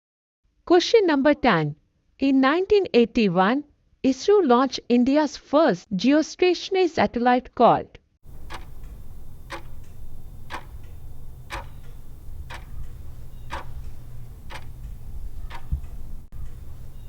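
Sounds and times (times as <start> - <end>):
steady low hum: 8.2 - 17.0
clock ticking: 8.3 - 17.0.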